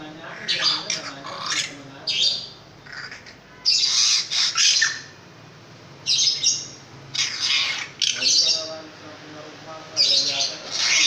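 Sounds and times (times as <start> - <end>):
bird giving harsh squawk calls: 0.3 - 5.2, 6.1 - 8.7, 10.0 - 11.0.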